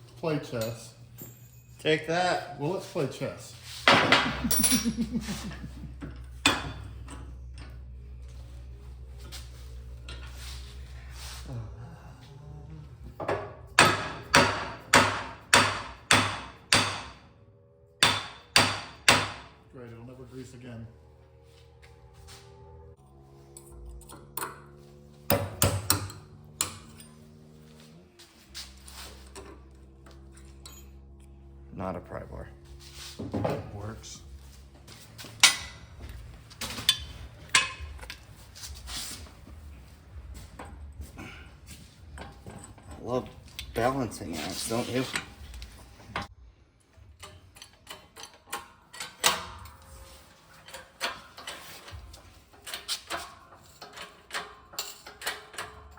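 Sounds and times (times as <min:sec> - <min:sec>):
tools clinking on steel: 0:00.4 - 0:02.0, 0:03.8 - 0:07.8, 0:35.4 - 0:38.3
hammer striking steel: 0:06.4 - 0:06.9, 0:13.3 - 0:17.2, 0:18.0 - 0:19.6, 0:25.3 - 0:27.1.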